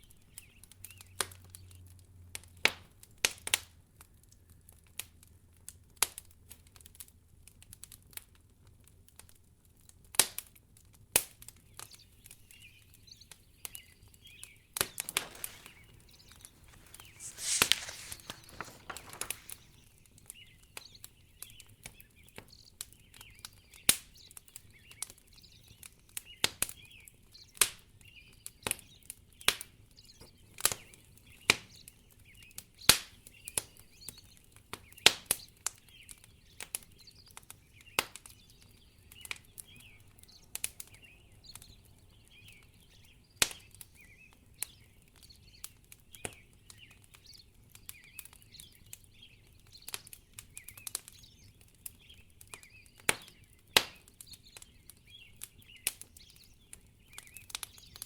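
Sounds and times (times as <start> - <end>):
wood fire crackling: 4.9 - 21.6
rustling hiss: 14.8 - 19.8.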